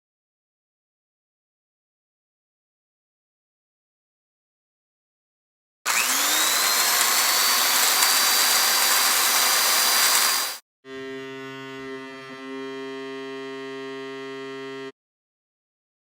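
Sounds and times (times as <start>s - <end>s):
machine rushing with rising whine: 5.9s - 10.6s.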